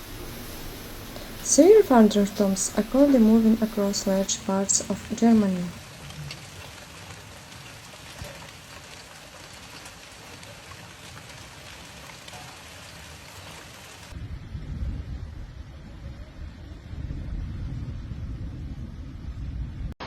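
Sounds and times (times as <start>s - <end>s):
raindrops ticking: 0.0s - 14.2s
steady rain falling: 0.0s - 14.2s
low rumble: 14.2s - 20.0s.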